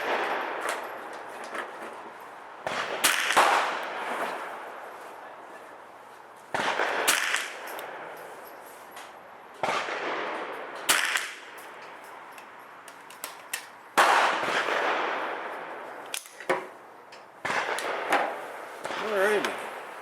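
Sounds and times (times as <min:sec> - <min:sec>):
rifle gunshots echoing: 0:00.0 - 0:01.4, 0:02.6 - 0:04.8, 0:06.5 - 0:08.2, 0:09.6 - 0:11.8, 0:14.0 - 0:16.8, 0:17.4 - 0:19.9.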